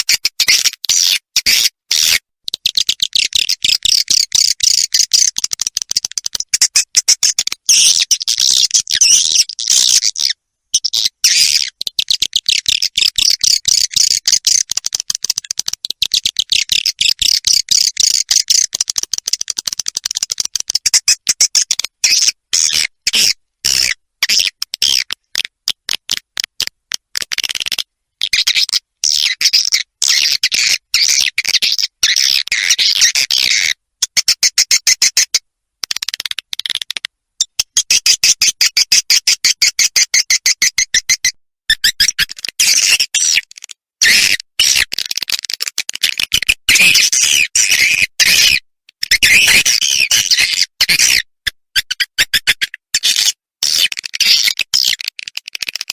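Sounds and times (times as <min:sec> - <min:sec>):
high-pitched bird twittering chirps: 0:06.6 - 0:14.5, 0:36.6 - 0:43.4.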